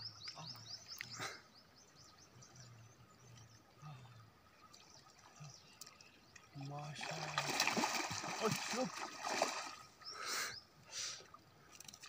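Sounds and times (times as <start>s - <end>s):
small bird singing: 0.0s - 4.1s.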